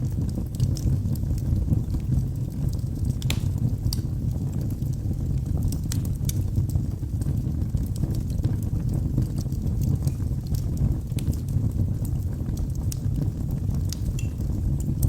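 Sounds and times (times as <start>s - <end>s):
burning wood crackling and popping: 0.0s - 15.0s
low rumble of flames: 0.0s - 15.0s.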